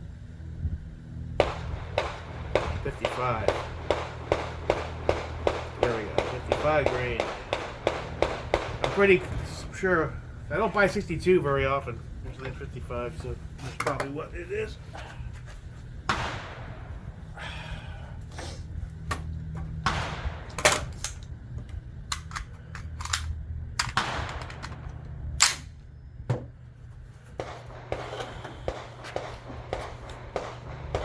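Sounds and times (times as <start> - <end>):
steady low hum: 0.0 - 31.0
rifle shots echoing: 1.4 - 10.8, 16.1 - 17.3, 19.8 - 21.1, 23.8 - 25.8, 27.4 - 31.0.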